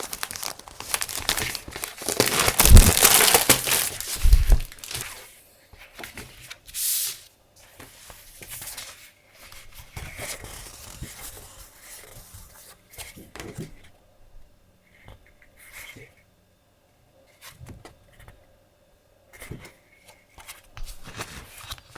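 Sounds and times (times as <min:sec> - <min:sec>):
paper rustling and sliding: 0:00.0 - 0:13.2, 0:20.4 - 0:21.9.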